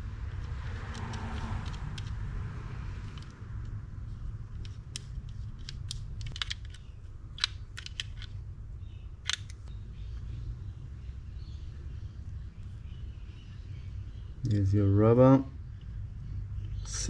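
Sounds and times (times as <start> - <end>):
small metal parts clicking: 0.2 - 2.2, 3.0 - 3.8, 4.5 - 8.4, 9.2 - 9.7
steady low hum: 1.5 - 17.0.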